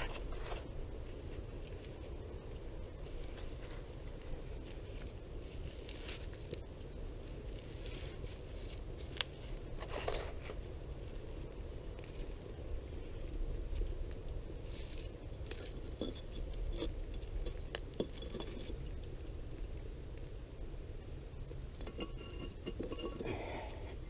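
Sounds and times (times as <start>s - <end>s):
steady low rumble: 0.0s - 24.0s
metal clinking and knocking: 21.8s - 23.3s.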